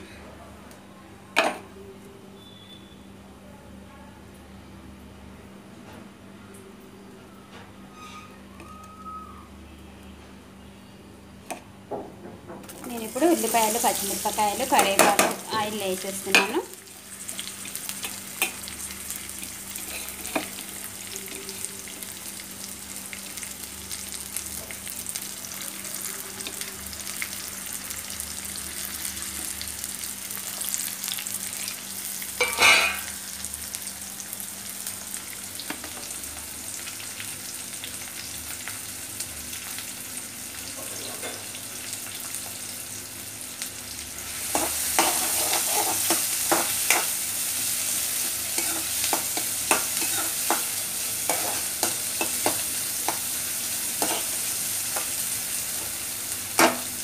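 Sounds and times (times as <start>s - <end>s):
vegetables sizzling in oil: 12.7s - 57.0s
spoon scraping and knocking pan: 44.5s - 47.1s, 48.5s - 53.3s, 54.0s - 55.1s.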